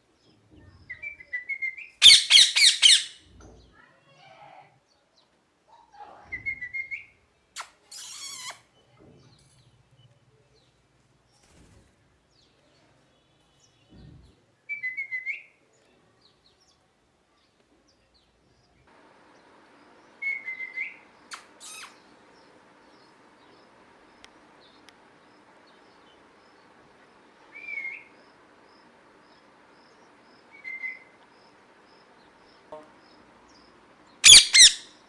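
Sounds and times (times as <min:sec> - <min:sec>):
parakeet chirping: 0:02.0 - 0:03.2, 0:21.6 - 0:22.0, 0:34.2 - 0:35.0.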